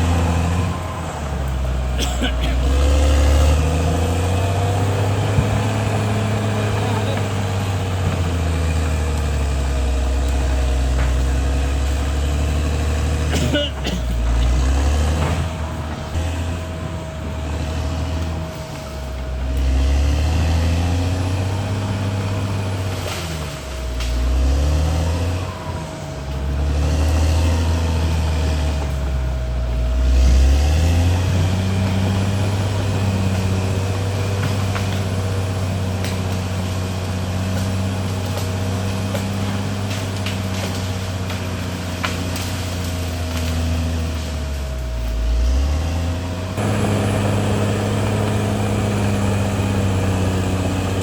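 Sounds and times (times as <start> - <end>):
bulldozer diesel engine working: 0.0 - 51.0
steady whine: 3.8 - 24.4, 39.5 - 51.0.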